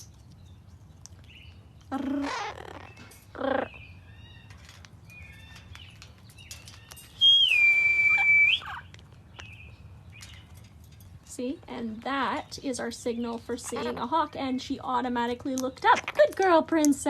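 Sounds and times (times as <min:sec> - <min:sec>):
soft bird chirps: 0:00.0 - 0:10.7
rough squawks: 0:01.9 - 0:04.7
long loud whistle: 0:07.2 - 0:08.7.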